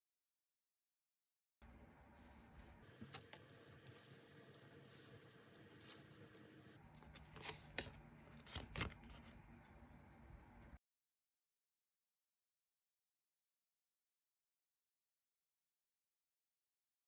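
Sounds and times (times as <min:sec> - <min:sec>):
cards scraping and clicking: 0:03.0 - 0:09.4.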